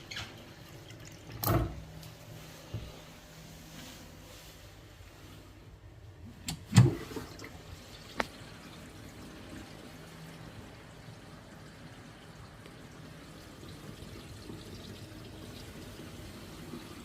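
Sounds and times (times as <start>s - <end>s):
water running into basin: 0.0s - 2.0s, 6.5s - 17.0s.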